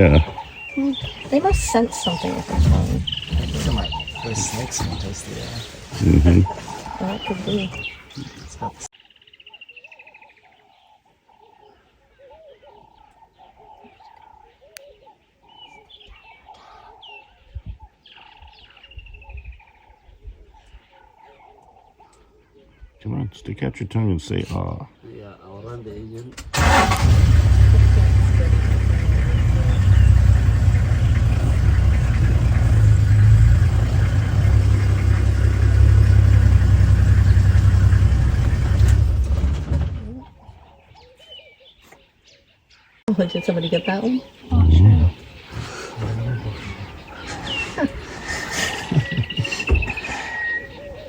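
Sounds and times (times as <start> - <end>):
low thumps: 0.0 - 6.5
vehicle engine rumbling: 0.0 - 8.9, 26.6 - 40.5, 43.6 - 51.0
birds chirping and whistling: 0.0 - 23.0, 28.3 - 39.4, 40.1 - 51.0.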